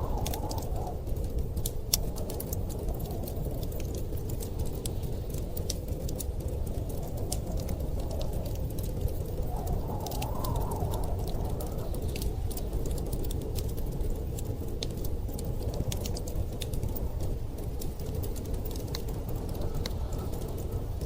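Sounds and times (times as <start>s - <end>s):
wind rushing: 0.0s - 4.2s, 5.3s - 14.0s
wood fire crackling: 0.0s - 21.0s.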